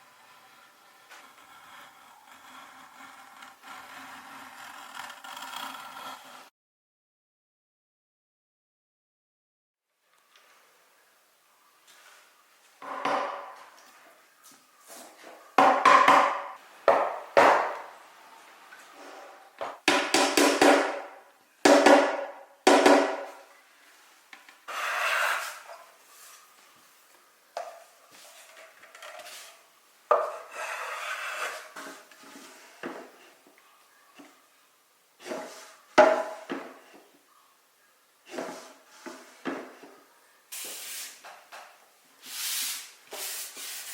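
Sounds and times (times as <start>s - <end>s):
wood scraping on wood: 0.0s - 6.5s, 24.6s - 26.4s, 28.1s - 33.5s, 35.2s - 37.1s, 38.3s - 40.0s.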